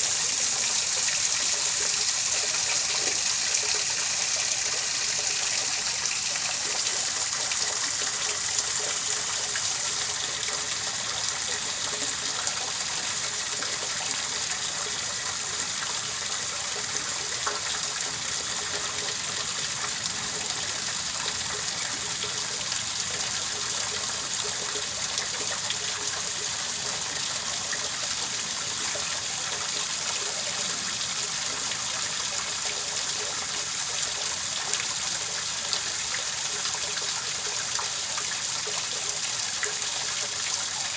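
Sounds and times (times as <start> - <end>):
running water rushing: 0.0 - 14.3.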